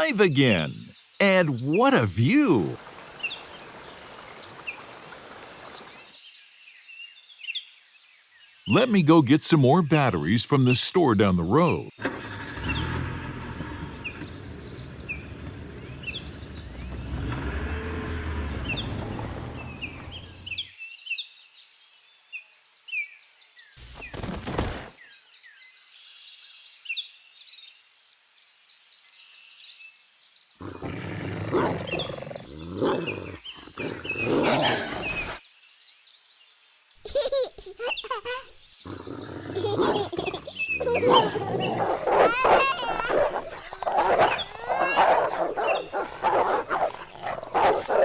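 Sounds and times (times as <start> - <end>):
birds chirping: 0.0 - 7.4, 8.6 - 20.8, 30.6 - 36.2, 37.0 - 48.0
animal roaring: 30.6 - 35.4, 38.9 - 48.0.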